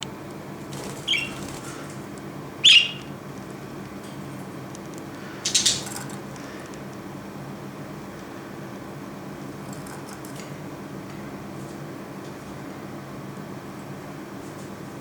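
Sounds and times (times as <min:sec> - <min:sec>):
budgerigar chirping: 0:01.0 - 0:01.5, 0:02.6 - 0:03.1, 0:05.5 - 0:05.8.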